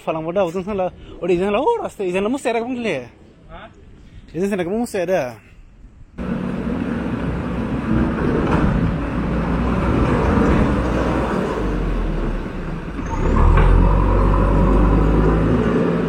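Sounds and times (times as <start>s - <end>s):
engine running low rumble: 6.2s - 16.0s.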